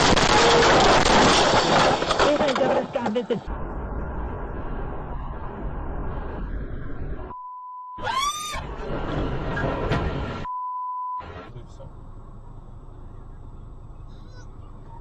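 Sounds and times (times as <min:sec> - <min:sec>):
cabin and road noise: 0:00.0 - 0:15.0
censor bleeps: 0:07.3 - 0:08.0, 0:10.5 - 0:11.2.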